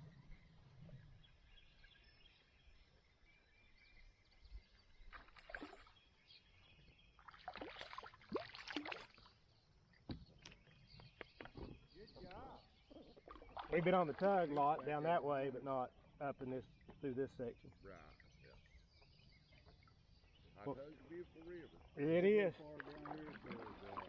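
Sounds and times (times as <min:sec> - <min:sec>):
quiet river ambience: 0:00.0 - 0:24.0
paddle strokes in water: 0:07.1 - 0:09.4, 0:10.1 - 0:14.9, 0:18.2 - 0:24.0.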